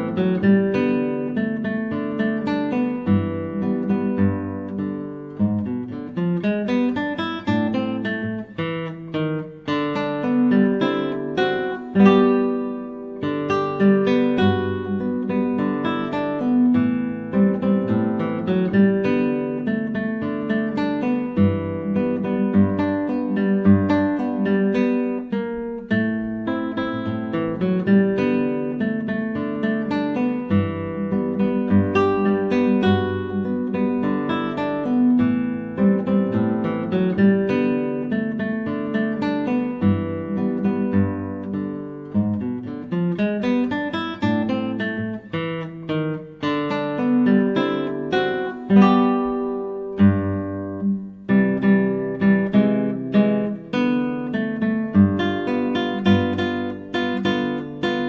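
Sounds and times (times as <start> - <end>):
fingerpicked classical guitar: 0.0 - 58.0.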